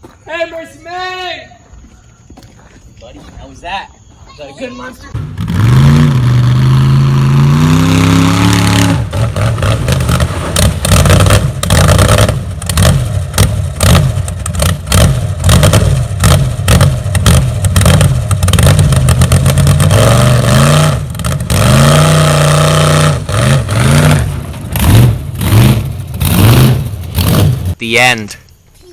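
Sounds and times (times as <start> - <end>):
engine revving with clattering: 5.1 - 27.8.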